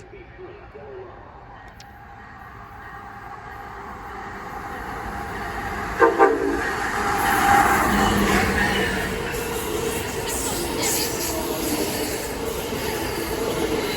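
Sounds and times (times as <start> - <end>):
train approaching rumble: 0.0 - 13.9
train horn toots: 5.9 - 8.3.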